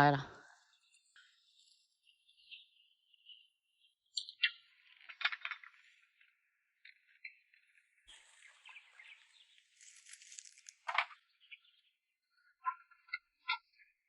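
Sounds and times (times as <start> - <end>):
branches and firewood clattering: 8.1 - 11.1
twigs and leaves rustling: 8.1 - 11.2.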